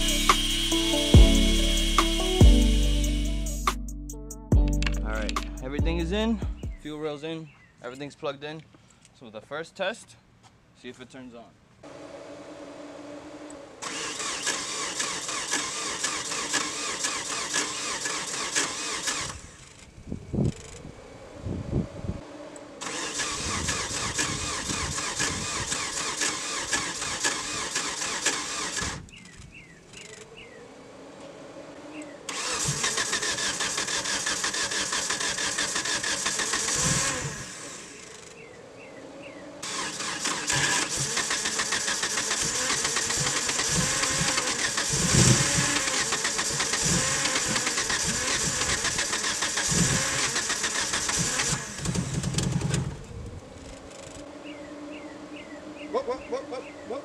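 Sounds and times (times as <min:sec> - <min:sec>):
engine cranking by starter: 0:00.0 - 0:03.8, 0:11.8 - 0:20.9, 0:22.2 - 0:30.4, 0:32.0 - 0:38.5, 0:39.6 - 0:54.3.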